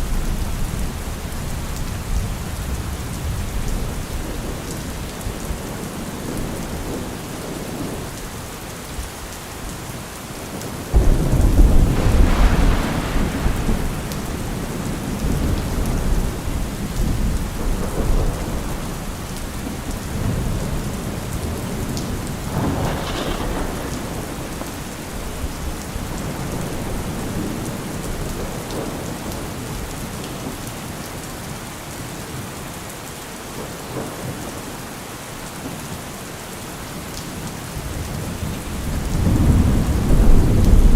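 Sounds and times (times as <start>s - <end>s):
heavy rain: 0.0s - 40.9s
deep thunder rumble: 10.9s - 29.9s, 37.9s - 40.9s.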